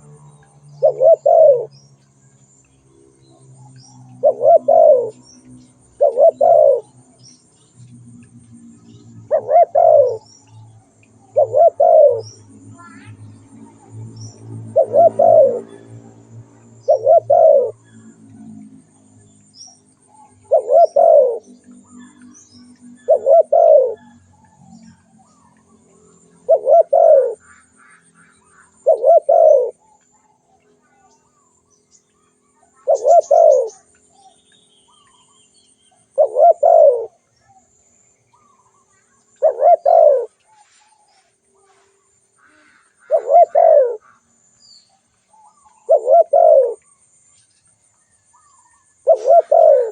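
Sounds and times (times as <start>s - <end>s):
dove cooing: 0.0s - 1.8s, 4.1s - 7.1s, 8.1s - 10.3s, 11.2s - 18.8s, 20.0s - 31.1s, 32.6s - 35.3s, 36.0s - 37.6s, 38.4s - 44.2s, 45.3s - 46.8s, 48.4s - 49.9s
small birds chirping: 0.0s - 49.9s.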